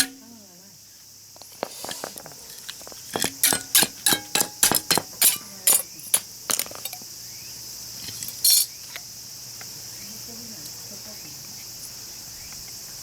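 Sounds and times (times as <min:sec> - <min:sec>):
crickets chirring: 0:00.0 - 0:13.0
metallic clatter: 0:01.9 - 0:07.0
hammer striking steel chisel: 0:03.1 - 0:06.8.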